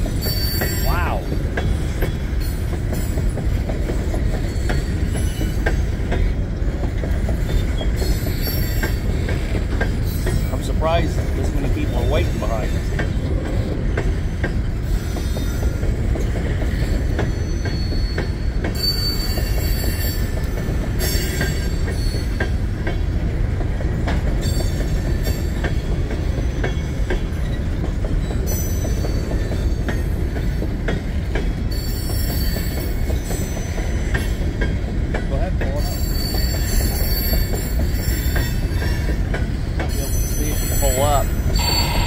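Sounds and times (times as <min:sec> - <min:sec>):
train cars rumbling: 0:00.0 - 0:42.0
wheels clicking over rail joints: 0:00.0 - 0:42.0
wheel squeal: 0:16.7 - 0:20.3, 0:35.8 - 0:39.1, 0:39.9 - 0:42.0.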